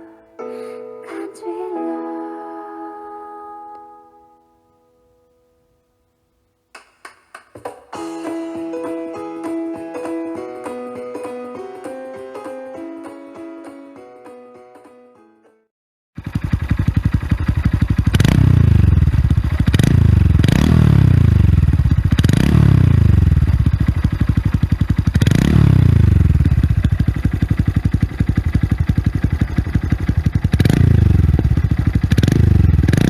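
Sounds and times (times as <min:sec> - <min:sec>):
motorcycle engine idling: 0:16.2 - 0:33.0
motorcycle throttle blips: 0:16.2 - 0:33.0.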